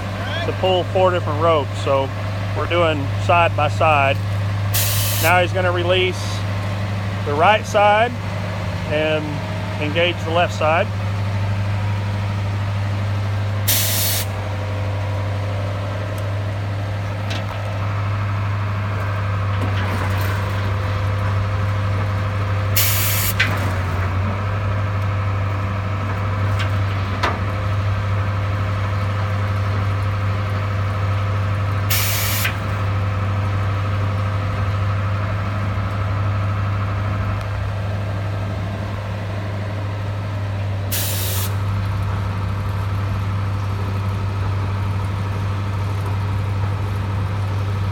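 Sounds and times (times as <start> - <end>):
truck engine running: 0.0 - 47.9
air hiss bursts: 4.8 - 5.3, 13.7 - 14.3, 22.8 - 23.4, 31.9 - 32.6, 40.9 - 41.6.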